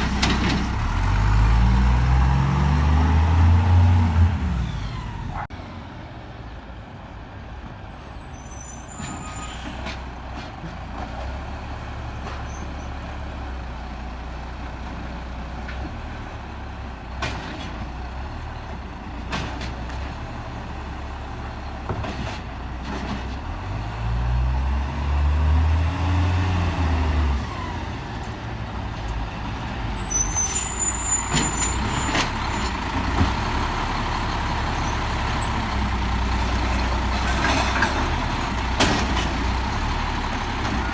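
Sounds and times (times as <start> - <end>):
brief high squeals: 8.0 - 9.9, 29.9 - 32.7
diesel truck engine idling: 27.8 - 37.4, 38.0 - 40.9.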